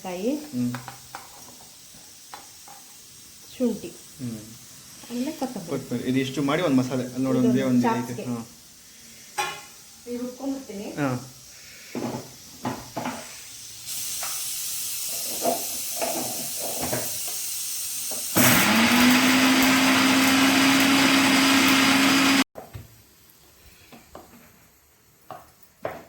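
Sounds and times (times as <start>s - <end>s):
mixer grinder motor whining: 18.3s - 22.4s.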